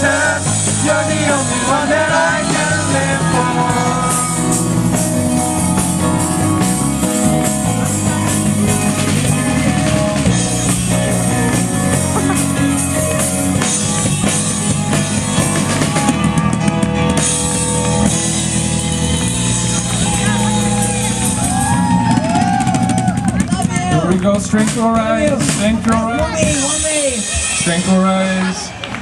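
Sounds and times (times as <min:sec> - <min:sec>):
person singing: 0:00.0 - 0:06.7
electric guitar: 0:00.0 - 0:26.6
drum kit: 0:00.0 - 0:28.2
rock worship band music: 0:00.0 - 0:29.0.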